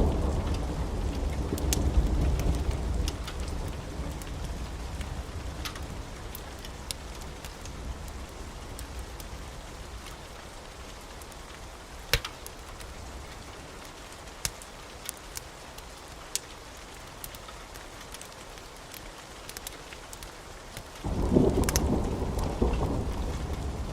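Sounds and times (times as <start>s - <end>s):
thunder rumble: 0.0s - 9.6s, 21.0s - 23.9s
steady rain: 0.0s - 23.9s
wood fire crackling: 0.0s - 23.9s.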